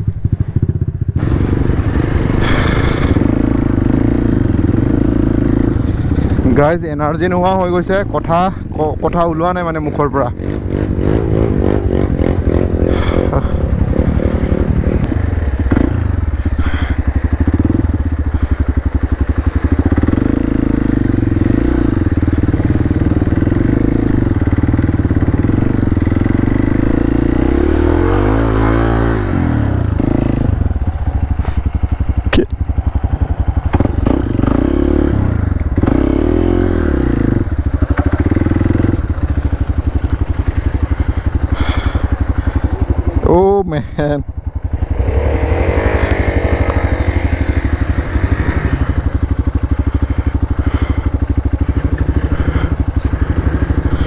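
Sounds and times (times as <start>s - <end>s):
motorcycle engine under load: 0.0s - 54.0s.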